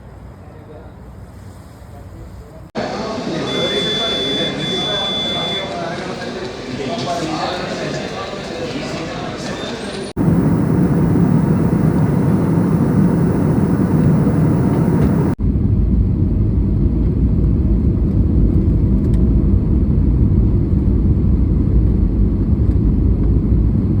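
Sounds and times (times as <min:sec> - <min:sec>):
boat engine rumble: 0:10.2 - 0:15.4
wind on microphone: 0:10.2 - 0:15.4.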